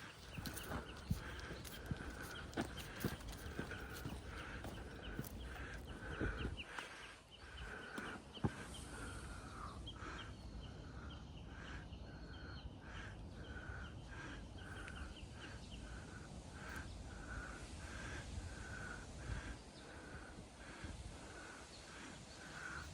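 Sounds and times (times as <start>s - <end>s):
higher bird chips: 0.0s - 5.9s
wind rumble on microphone: 0.0s - 6.7s, 15.0s - 22.9s.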